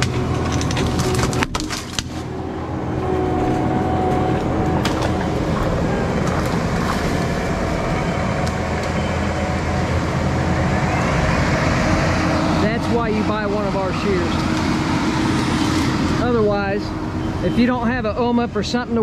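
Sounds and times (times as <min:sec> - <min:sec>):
wood cracking: 0:00.0 - 0:02.5, 0:03.2 - 0:09.0
diesel engine running: 0:00.0 - 0:19.0.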